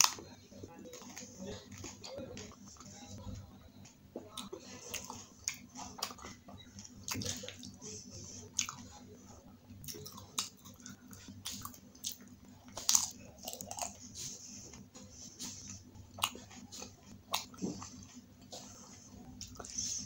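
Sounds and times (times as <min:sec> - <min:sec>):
wet crunchy chewing: 0:09.8 - 0:14.1, 0:15.5 - 0:18.7.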